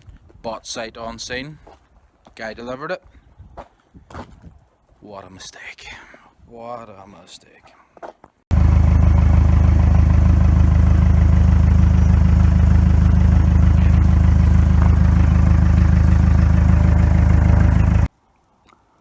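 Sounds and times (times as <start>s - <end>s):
engine idling: 8.5s - 18.1s.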